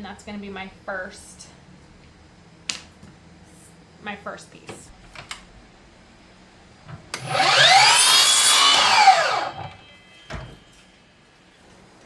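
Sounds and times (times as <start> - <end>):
miter saw cutting wood: 7.2 - 9.8.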